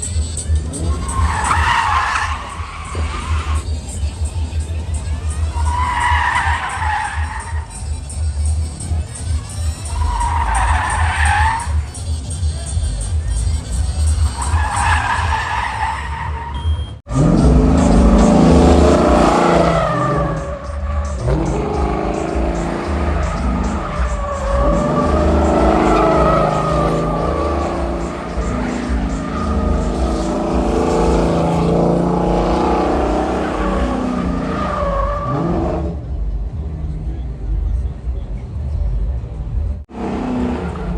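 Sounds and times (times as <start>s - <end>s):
car engine running hard: 0.0s - 16.2s, 17.0s - 40.9s
tyres squealing: 0.0s - 36.0s
heavy bass music beat: 0.0s - 40.9s.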